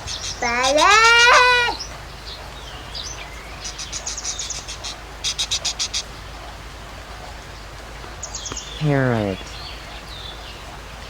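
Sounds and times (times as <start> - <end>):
parrot chattering: 0.0 - 1.9, 3.6 - 6.6.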